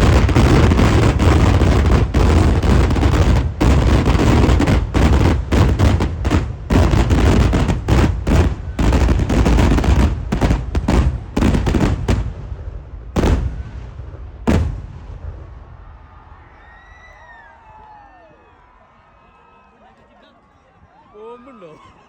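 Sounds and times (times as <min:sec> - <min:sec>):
firecracker explosions: 0:00.0 - 0:16.6.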